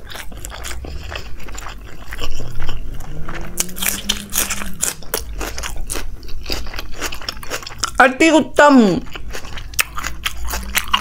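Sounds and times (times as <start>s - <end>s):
chewing with wet mouth clicks: 0.0s - 8.0s, 9.0s - 11.0s
person humming mmm: 2.8s - 5.0s.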